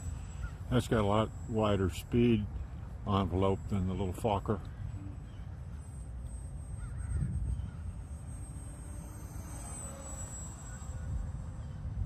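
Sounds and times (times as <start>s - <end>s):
distant electric motor whine: 0.0s - 12.0s
wind rumbling on microphone: 0.0s - 12.0s.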